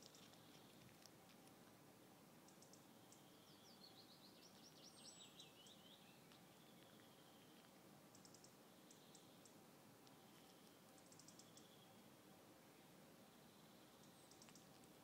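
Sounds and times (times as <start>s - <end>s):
faint clicks: 0.0s - 1.8s, 2.4s - 3.3s, 5.6s - 11.7s, 13.9s - 15.0s
faint steady hiss: 0.0s - 15.0s
songbird chirping: 0.0s - 15.0s.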